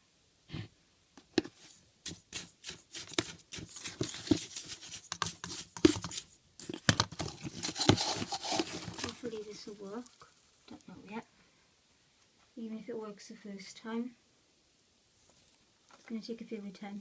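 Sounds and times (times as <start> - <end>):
packet rustling: 1.5 - 10.8.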